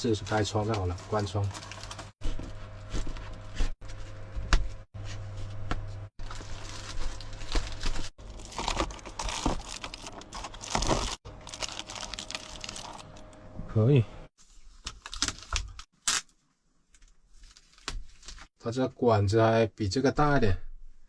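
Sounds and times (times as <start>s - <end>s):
material crinkling and rustling: 0.2s - 13.3s, 14.4s - 18.6s.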